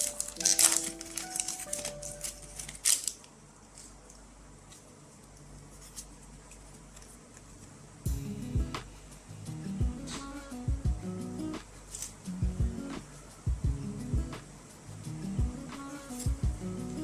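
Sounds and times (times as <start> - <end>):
music: 0.0 - 3.1, 8.1 - 17.0
foil wrapper crinkling: 0.0 - 4.1, 16.0 - 16.4.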